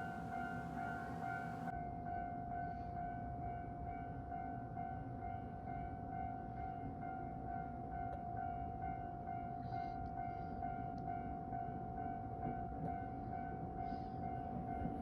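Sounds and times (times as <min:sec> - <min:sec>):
level-crossing alarm ringing: 0:00.0 - 0:01.7.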